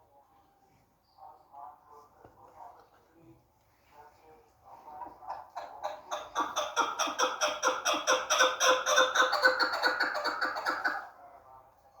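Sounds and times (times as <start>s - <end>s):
partridge clucking calls: 5.0s - 11.1s.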